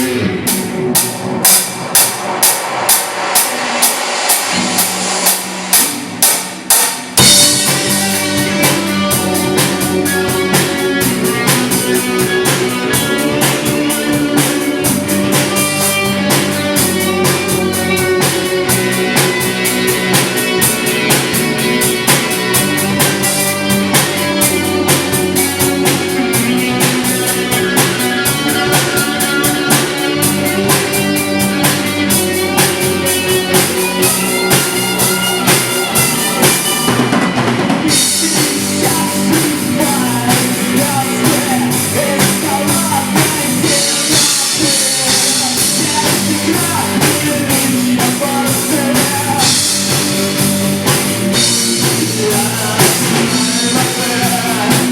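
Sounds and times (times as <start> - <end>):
live band playing: 0.0 - 54.9
drum hits: 0.6 - 18.4.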